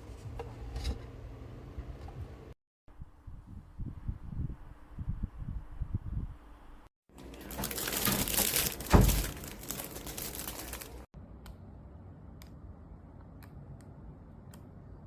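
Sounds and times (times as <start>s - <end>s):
crinkling and rustling handling: 7.1s - 11.1s.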